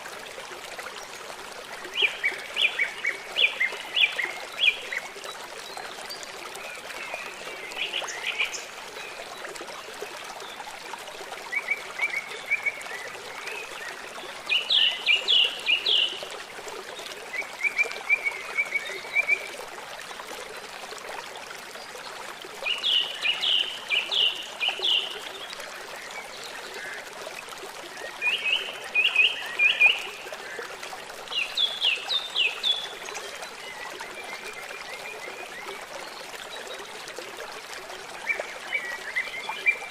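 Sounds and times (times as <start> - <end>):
stream trickling: 0.0 - 39.9
songbird singing: 22.7 - 25.5.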